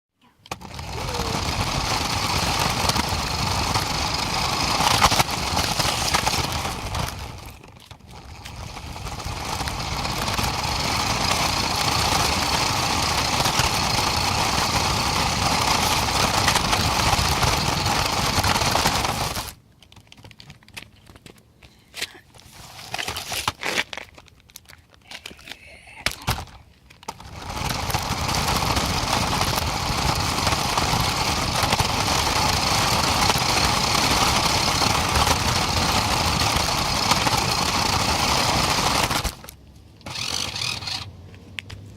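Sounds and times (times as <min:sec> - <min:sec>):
truck engine and road noise: 0:26.8 - 0:41.9.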